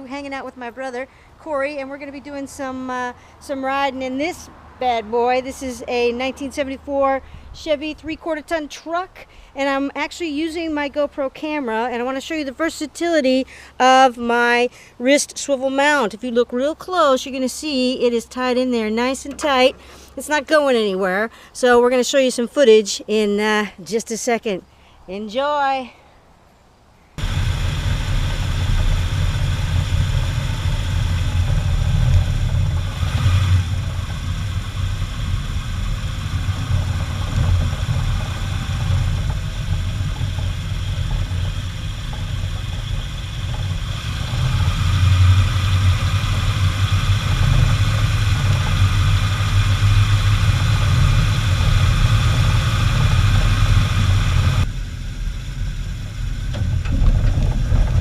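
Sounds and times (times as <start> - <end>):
pickup truck engine rumbling: 27.2 - 58.0.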